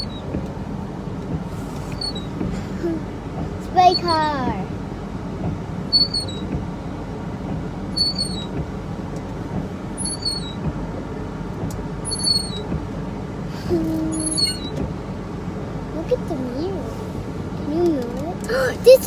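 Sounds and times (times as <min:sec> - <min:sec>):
windshield wipers squeaking: 0:01.3 - 0:04.3, 0:05.4 - 0:06.7, 0:07.5 - 0:08.7, 0:09.5 - 0:10.9, 0:11.6 - 0:12.9, 0:13.7 - 0:15.0, 0:17.9 - 0:19.0
car engine idling: 0:10.6 - 0:19.0.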